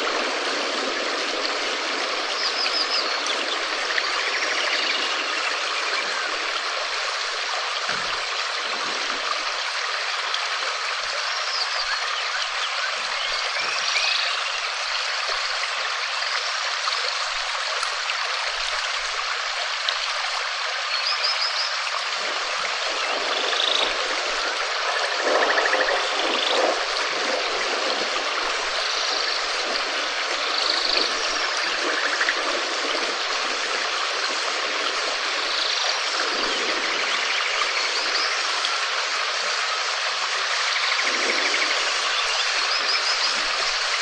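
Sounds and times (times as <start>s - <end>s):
steady rain: 0.0s - 44.0s.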